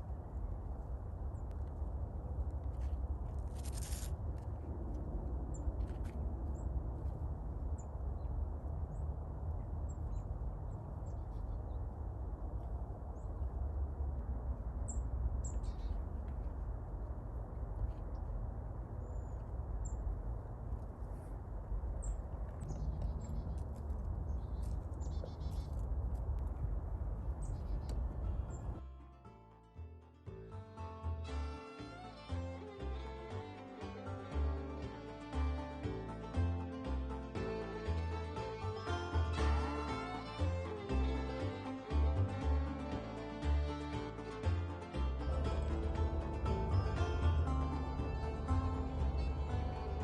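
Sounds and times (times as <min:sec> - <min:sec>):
steady low rumble: 0:00.0 - 0:29.1, 0:29.7 - 0:50.0
small birds chirping: 0:14.8 - 0:16.2, 0:22.0 - 0:25.9.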